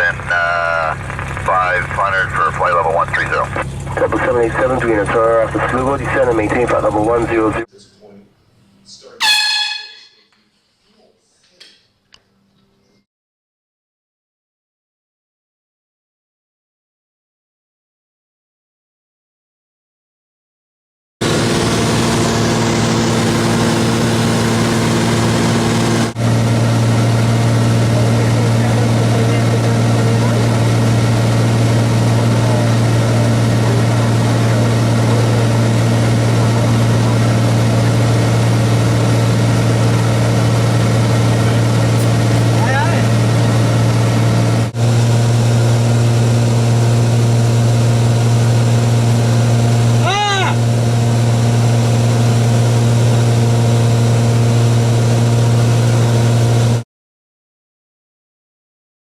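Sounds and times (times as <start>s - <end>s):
propeller plane engine droning: 0.0s - 7.7s, 21.2s - 56.8s.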